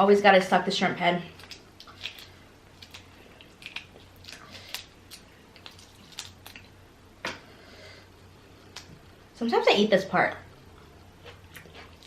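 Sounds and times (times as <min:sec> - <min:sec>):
faint low hum: 0:00.0 - 0:12.0
wet chewing and sucking: 0:01.3 - 0:06.8, 0:10.8 - 0:12.0.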